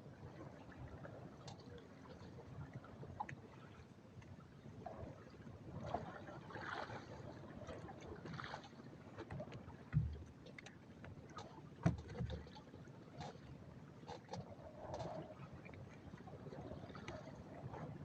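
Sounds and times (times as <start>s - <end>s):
water sloshing against hull: 0.0s - 18.0s
knocks on boat: 9.8s - 10.3s, 11.8s - 12.4s.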